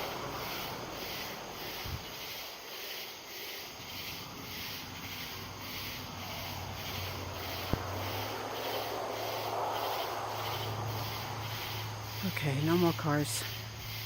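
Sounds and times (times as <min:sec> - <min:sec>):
car approaching on road: 0:04.2 - 0:14.0.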